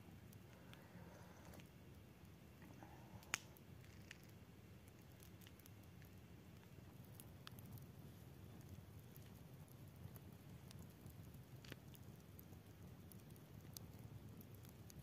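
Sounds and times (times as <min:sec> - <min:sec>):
low background hiss: 0:00.0 - 0:15.0
faint clicks: 0:02.6 - 0:07.8.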